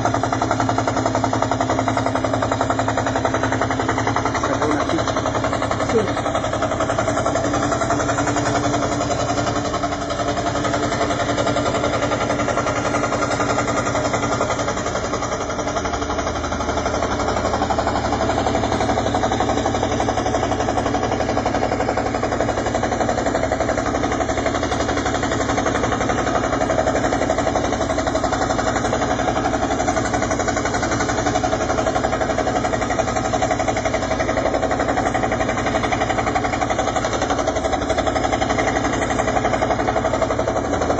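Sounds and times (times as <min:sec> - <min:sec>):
scroll saw cutting wood: 0:04.0 - 0:07.0.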